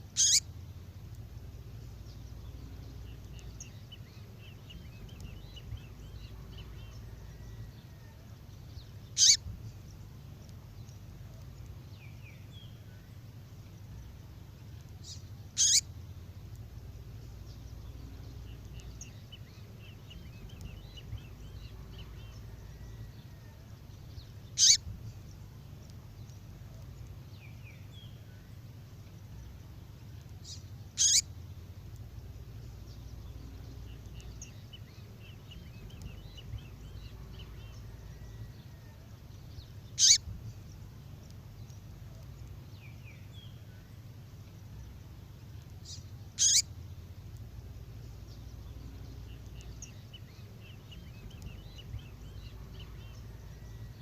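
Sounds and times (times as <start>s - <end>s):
faint bird chirps and twitters: 0.0s - 54.0s
low background rumble: 0.0s - 54.0s
songbird call notes: 0.0s - 54.0s.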